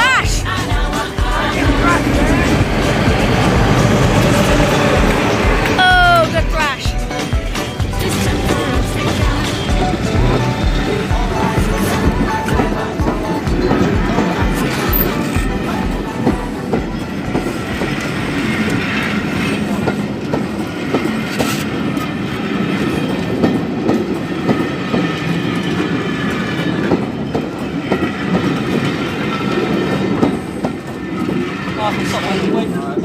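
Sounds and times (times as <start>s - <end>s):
train wheels clattering over rails: 0.6s - 5.8s, 6.9s - 33.0s.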